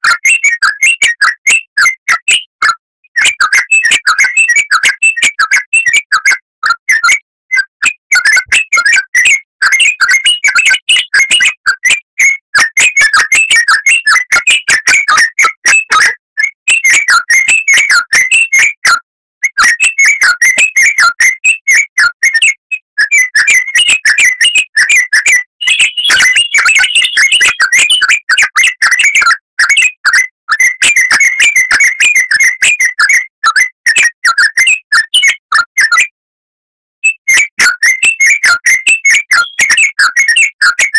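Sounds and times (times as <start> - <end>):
bird singing chattering notes: 25.6 - 28.1, 39.3 - 39.8.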